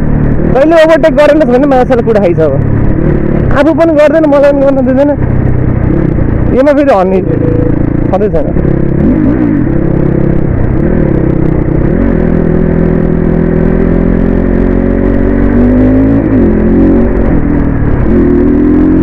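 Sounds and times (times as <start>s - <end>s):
road and wind noise: 0.0s - 19.0s
dirt bike engine revving: 5.8s - 19.0s.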